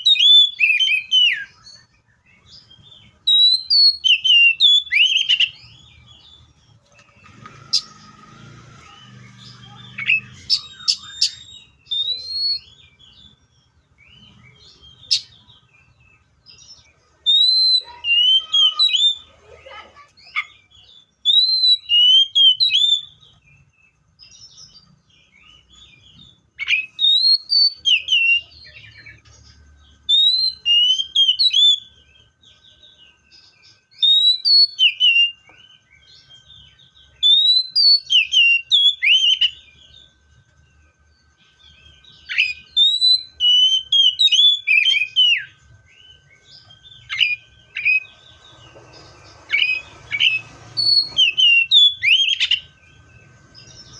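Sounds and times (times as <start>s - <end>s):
magpie-robin whistled song: 0.0s - 53.9s
quiet bird chirps: 0.0s - 53.9s.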